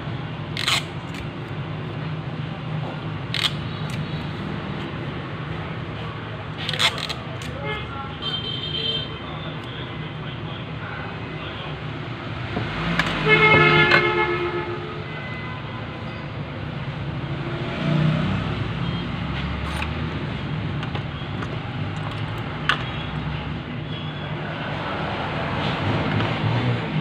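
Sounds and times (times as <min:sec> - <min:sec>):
low traffic rumble: 0:00.0 - 0:27.0
horn sounding: 0:13.1 - 0:15.7.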